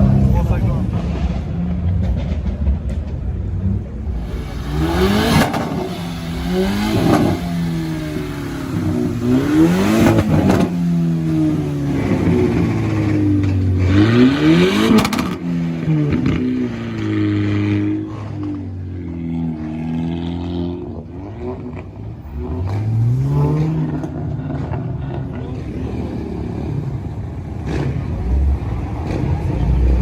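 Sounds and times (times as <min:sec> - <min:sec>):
car engine idling: 0:00.0 - 0:13.9
car engine revving: 0:00.0 - 0:30.0.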